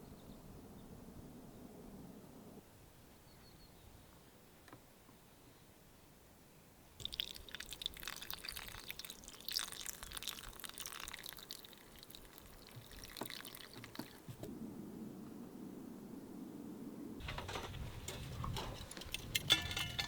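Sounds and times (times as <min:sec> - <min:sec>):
water pouring and splashing: 0:07.0 - 0:14.5.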